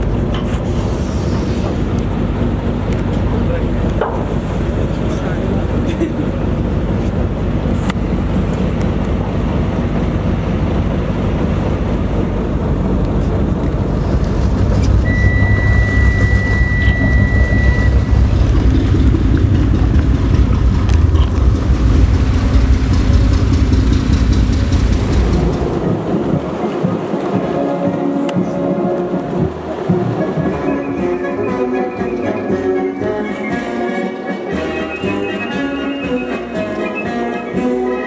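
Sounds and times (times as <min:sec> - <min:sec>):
low engine rumble: 0:00.0 - 0:34.6
high beep: 0:15.0 - 0:18.4.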